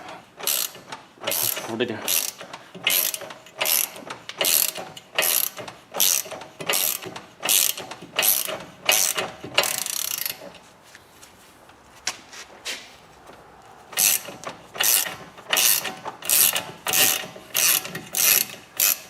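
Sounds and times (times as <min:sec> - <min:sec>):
ratchet wrench clicking: 0:00.4 - 0:10.5, 0:14.0 - 0:19.0.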